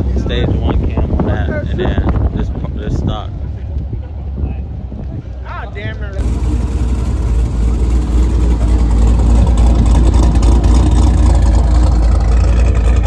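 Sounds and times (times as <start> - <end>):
loud deep car engine running: 6.1 - 13.0.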